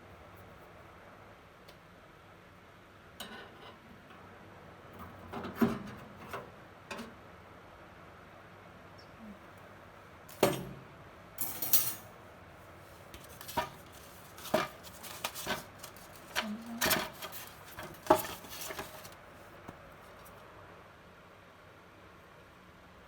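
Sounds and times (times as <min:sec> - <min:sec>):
metal racks and trays clattering: 0:11.4 - 0:12.2, 0:13.2 - 0:19.2.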